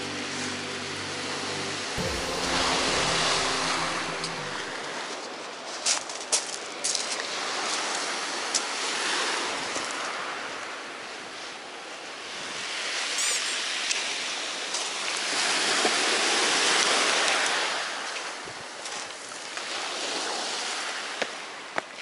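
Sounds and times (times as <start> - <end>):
sea waves on pebble beach: 2.0 - 5.2.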